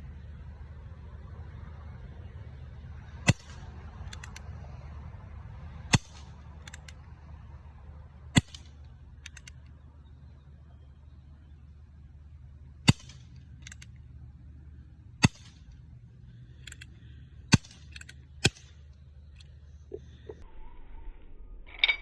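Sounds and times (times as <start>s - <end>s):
air revolver shots: 8.3s - 8.8s, 12.8s - 13.4s, 15.2s - 15.7s, 17.5s - 18.8s
quiet clicks: 9.2s - 9.8s.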